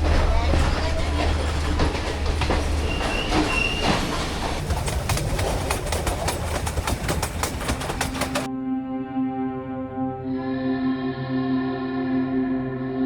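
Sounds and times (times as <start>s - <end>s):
rail clicks: 0.0s - 8.5s
train rumbling along rails: 0.0s - 8.5s.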